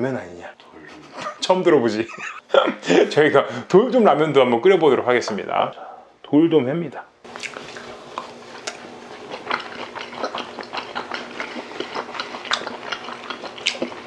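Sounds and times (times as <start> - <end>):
wet mouth clicks and smacks: 7.3 - 8.8.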